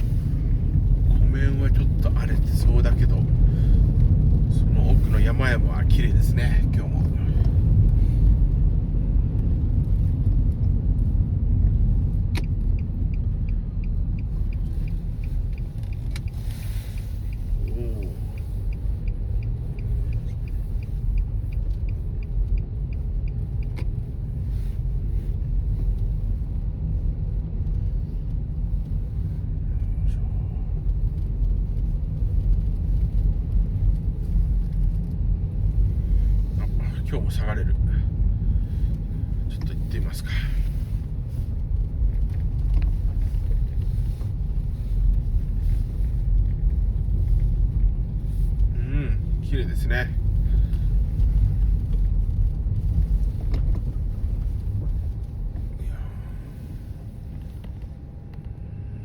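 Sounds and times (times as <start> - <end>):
car interior road and engine noise: 0.0 - 59.0
fast faint ticks: 8.7 - 26.6.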